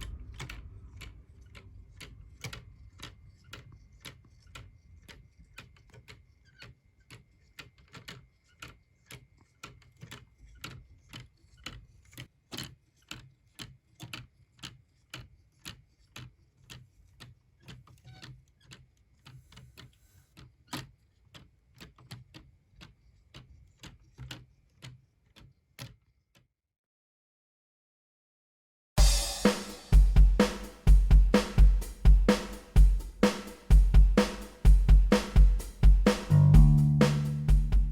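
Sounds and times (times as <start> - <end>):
clock ticking: 29.0 - 37.9.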